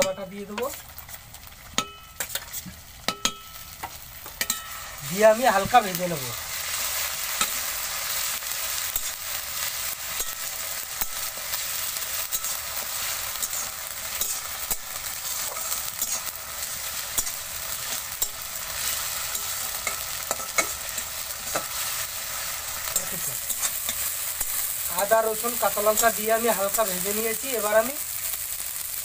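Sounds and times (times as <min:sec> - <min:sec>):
paste sizzling in hot oil: 0:00.0 - 0:29.0
metal spatula scraping pan: 0:12.2 - 0:22.0.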